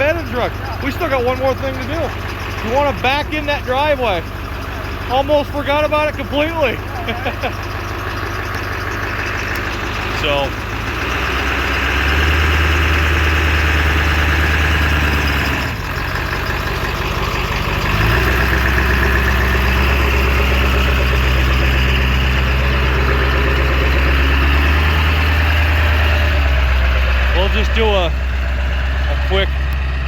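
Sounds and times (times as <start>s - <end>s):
pickup truck engine running: 0.0s - 30.0s.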